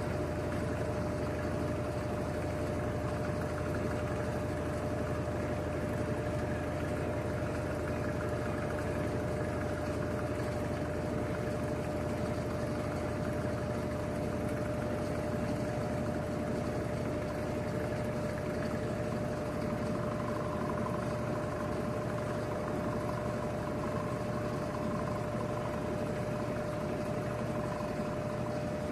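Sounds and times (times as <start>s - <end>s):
washing machine spinning: 0.0s - 28.9s.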